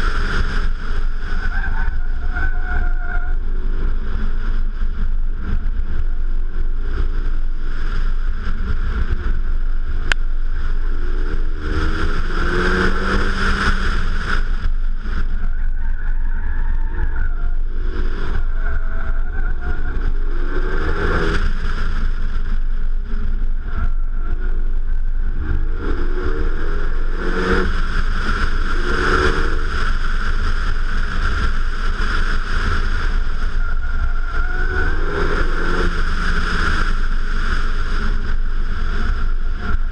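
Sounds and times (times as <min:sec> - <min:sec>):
car engine accelerating: 0:00.0 - 0:39.9
wind rumbling on microphone: 0:00.0 - 0:39.9.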